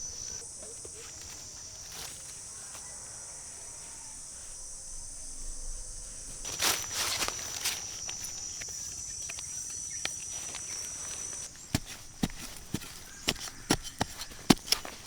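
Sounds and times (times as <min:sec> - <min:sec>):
insects trilling: 0:00.0 - 0:15.0
rustling crunches in leaf litter: 0:06.3 - 0:15.0.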